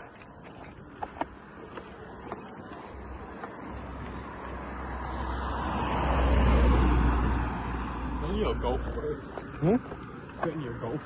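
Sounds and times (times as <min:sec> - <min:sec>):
car passing close by: 0:02.9 - 0:09.3.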